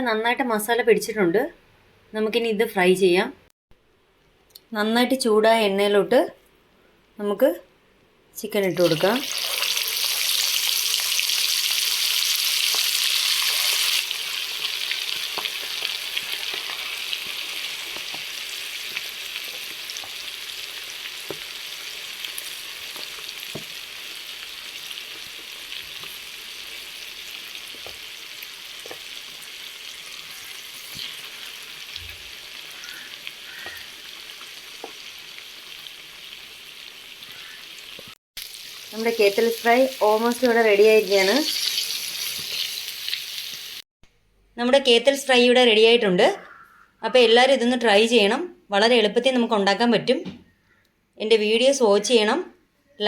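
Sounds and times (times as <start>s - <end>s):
chicken deep-frying in oil: 8.8s - 43.8s.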